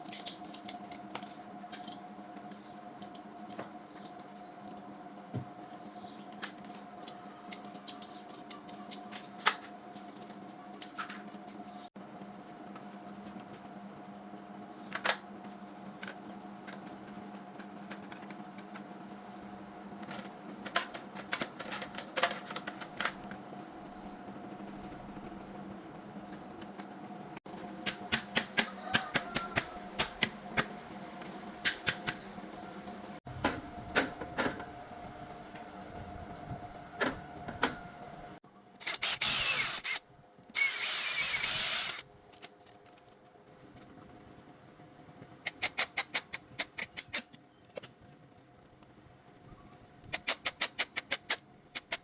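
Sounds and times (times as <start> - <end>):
workshop hum: 0.0 - 52.0
power tool squealing: 38.8 - 40.0, 40.6 - 42.0.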